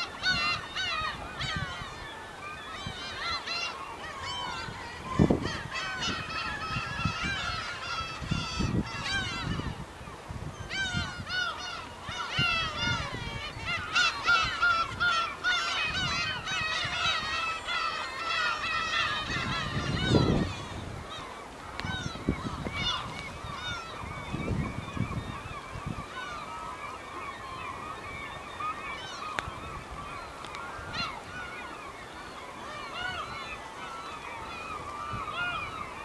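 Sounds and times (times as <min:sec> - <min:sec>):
gulls calling: 0:00.0 - 0:36.0.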